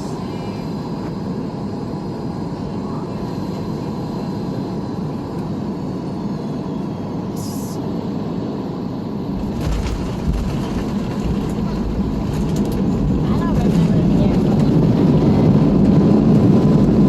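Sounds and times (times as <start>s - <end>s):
engines and airflow rushing: 0.0s - 17.0s
deep rumble: 9.2s - 17.0s
knocks and jolts: 9.4s - 12.7s.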